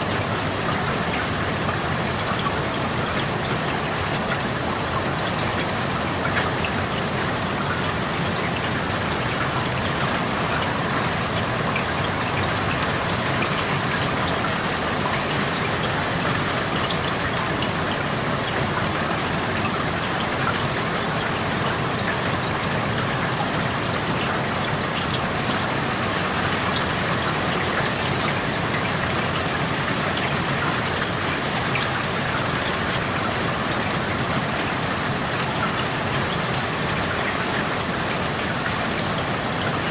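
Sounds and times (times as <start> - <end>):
raindrops pattering on surfaces: 0.0 - 39.9
steady rain falling: 0.0 - 39.9.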